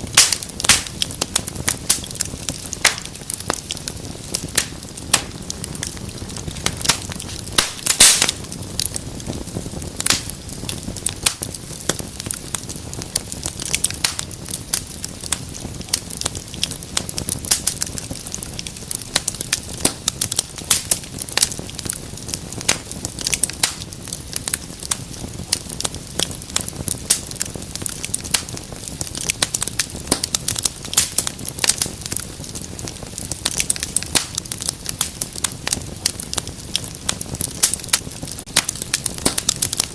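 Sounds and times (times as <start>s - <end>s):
low hiss of flame: 0.0s - 39.9s
wood fire crackling and popping: 0.0s - 39.9s.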